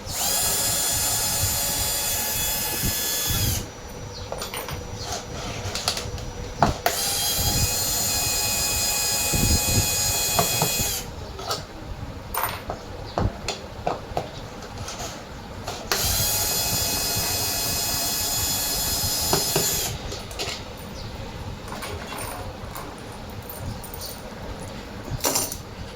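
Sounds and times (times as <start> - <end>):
electric drill-driver whining: 0.0 - 11.1, 15.9 - 20.0
metal parts clinking: 21.7 - 25.6.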